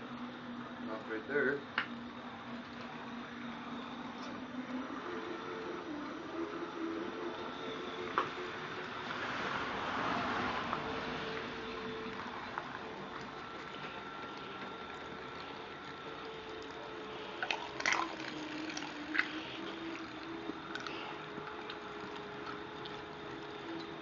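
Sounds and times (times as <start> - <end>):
electric motor whine: 0.0 - 24.0.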